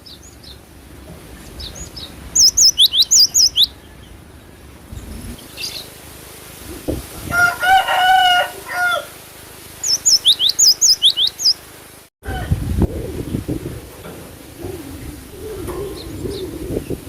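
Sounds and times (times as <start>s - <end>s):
low rumbling noise: 0.0s - 17.0s
bird high sharp chirps: 1.5s - 4.2s, 9.8s - 11.6s
rooster crowing: 7.2s - 9.2s, 12.2s - 12.7s.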